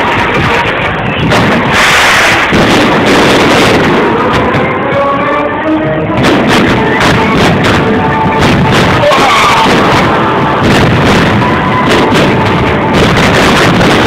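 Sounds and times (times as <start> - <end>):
fireworks bursting: 0.0 - 14.0
music: 0.0 - 14.0.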